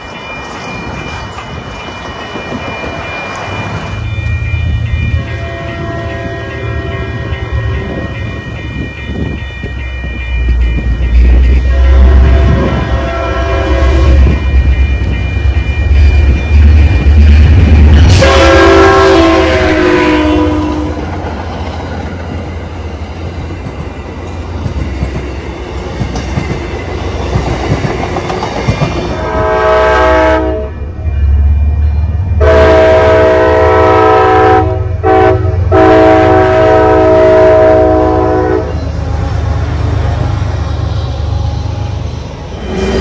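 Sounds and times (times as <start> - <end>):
train rumbling past: 0.0 - 43.0
locomotive air horn: 5.1 - 8.1, 11.2 - 14.4, 18.0 - 21.0, 29.2 - 30.8, 32.4 - 38.8.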